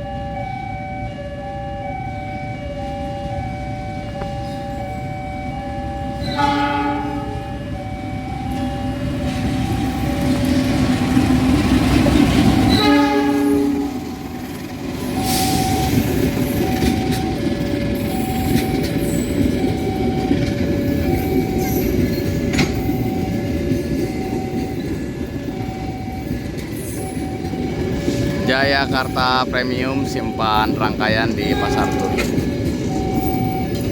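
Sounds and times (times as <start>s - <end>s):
train rumbling past: 0.0s - 33.9s
two-tone warning signal beeping: 0.0s - 33.9s
train horn blast: 6.2s - 7.6s, 12.4s - 14.2s, 31.4s - 32.5s.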